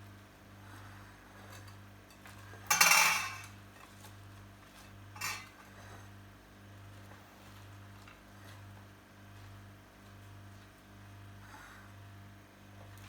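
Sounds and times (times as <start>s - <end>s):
utensil clattering on a dish: 1.5s - 3.6s, 5.1s - 5.7s.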